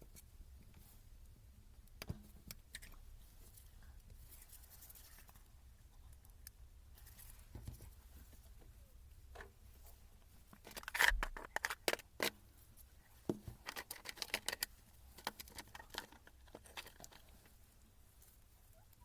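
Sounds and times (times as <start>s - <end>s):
handling clicks and taps: 13.2s - 17.5s.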